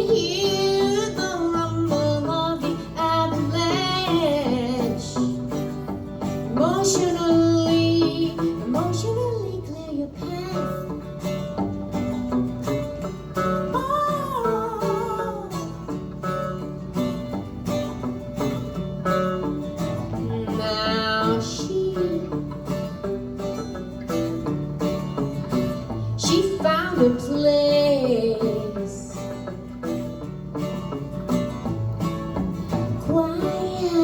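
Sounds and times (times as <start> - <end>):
person singing: 0.0 - 11.0, 13.6 - 16.0, 20.0 - 22.7, 26.1 - 29.3, 33.0 - 34.0
plucked acoustic strings: 0.0 - 34.0.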